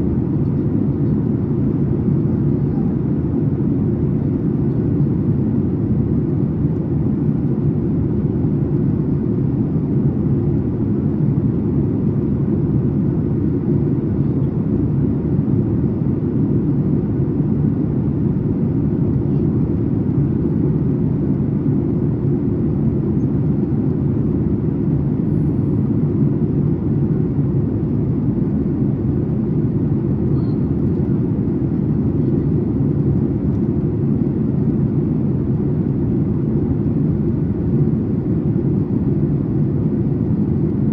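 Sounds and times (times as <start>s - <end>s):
aircraft cabin engine drone: 0.0s - 40.9s.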